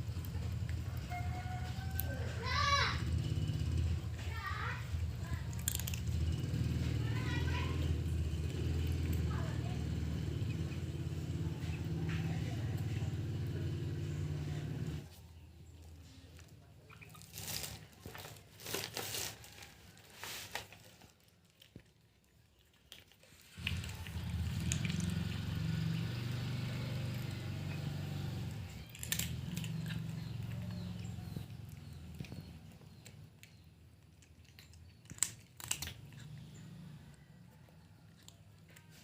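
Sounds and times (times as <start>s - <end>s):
cat crunching dry food: 4.9s - 6.4s, 16.5s - 39.0s.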